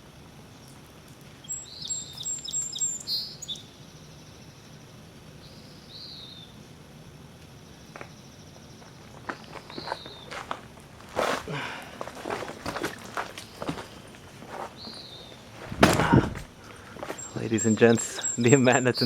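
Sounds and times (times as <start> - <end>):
background hiss: 0.0 - 19.0
bird chirping: 1.4 - 4.2, 8.9 - 10.4, 13.4 - 19.0.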